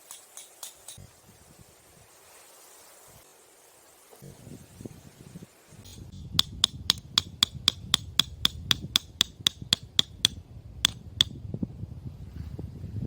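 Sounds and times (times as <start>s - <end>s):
hammer striking metal tent peg: 5.9s - 11.4s.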